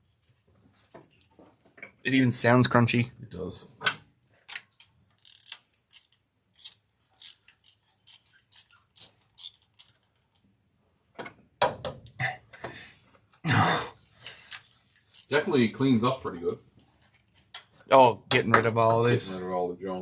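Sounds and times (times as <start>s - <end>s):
hand ratchet clicking: 5.1s - 10.0s.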